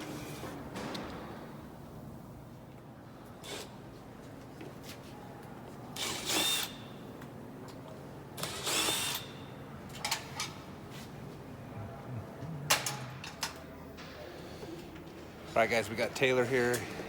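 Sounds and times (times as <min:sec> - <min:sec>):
power drill bursts: 0:06.0 - 0:06.8, 0:08.4 - 0:09.3.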